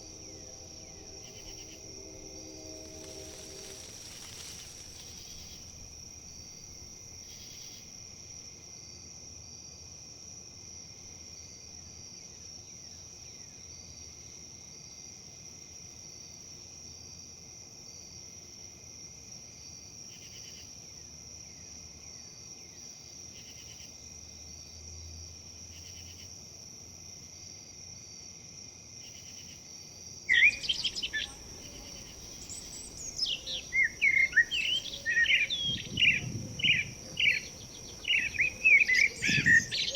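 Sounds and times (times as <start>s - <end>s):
insects droning: 0.0s - 39.9s
bird chirping and trilling: 30.3s - 39.9s.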